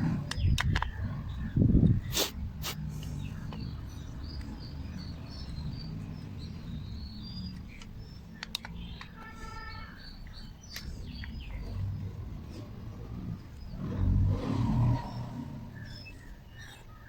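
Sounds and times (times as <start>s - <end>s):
birds chirping: 0.0s - 17.0s
sharp clicks: 0.2s - 1.0s, 7.5s - 9.3s, 10.4s - 11.9s
low rumble: 11.0s - 16.5s.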